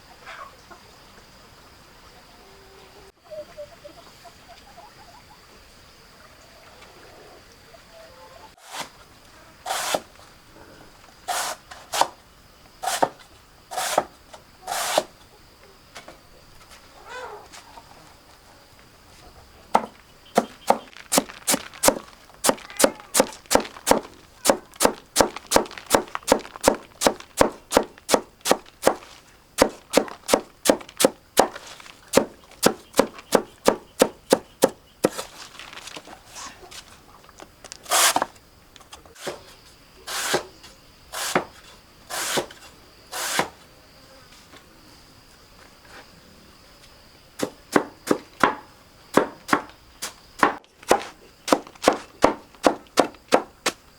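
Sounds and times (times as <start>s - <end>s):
faint insect drone: 0.0s - 53.9s
knife chopping stalks: 12.8s - 14.1s, 19.7s - 35.2s, 50.4s - 53.8s.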